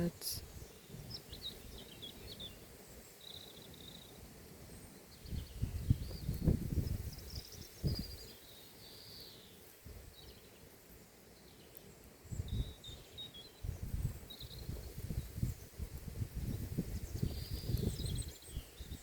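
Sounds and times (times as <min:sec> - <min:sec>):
small birds chirping: 0:00.0 - 0:19.0
wind gusting over microphone: 0:05.2 - 0:08.2, 0:12.3 - 0:12.9, 0:13.6 - 0:19.0.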